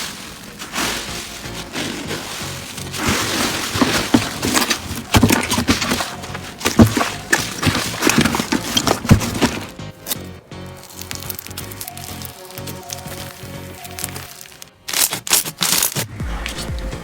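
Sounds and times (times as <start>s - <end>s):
soft crackling hiss: 0.0s - 5.1s
slime squishing with wet pops: 9.8s - 16.1s.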